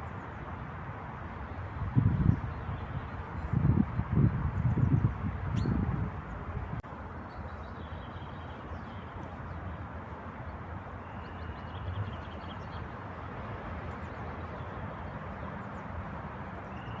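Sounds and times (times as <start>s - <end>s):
steady outdoor background noise: 0.0s - 17.0s
bird chirps and trills: 2.2s - 6.5s, 10.5s - 12.9s, 16.6s - 17.0s.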